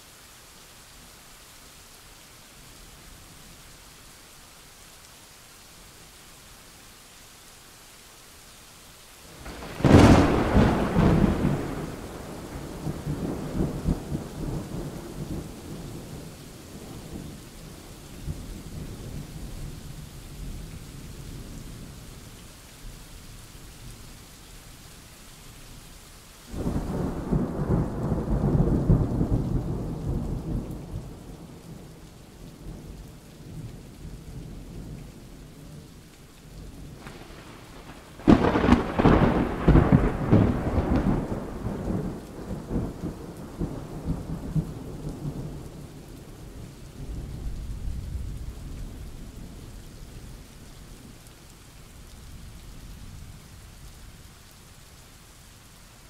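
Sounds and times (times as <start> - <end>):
steady rain: 0.0 - 56.0
thunder rumbling: 9.4 - 19.6, 26.5 - 32.9, 36.8 - 49.6.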